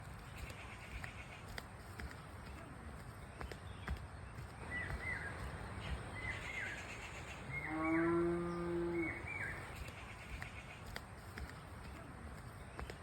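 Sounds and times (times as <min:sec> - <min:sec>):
bird chirping: 0:00.0 - 0:13.0
cow mooing: 0:07.6 - 0:09.3.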